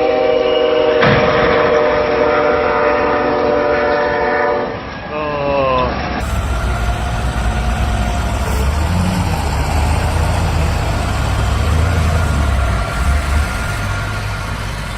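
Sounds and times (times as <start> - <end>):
heavy vehicle engine running: 6.2 - 14.9.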